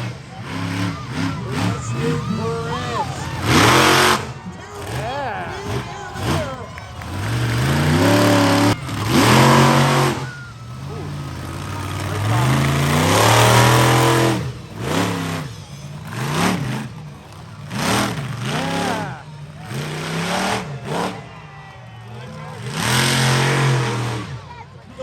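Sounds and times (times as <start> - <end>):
monster truck engine revving: 0.0 - 25.0.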